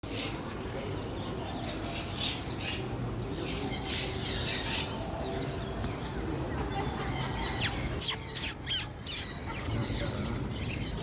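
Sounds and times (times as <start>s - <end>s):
low background murmur: 0.0s - 11.0s
birds chirping and squawking: 7.1s - 11.0s.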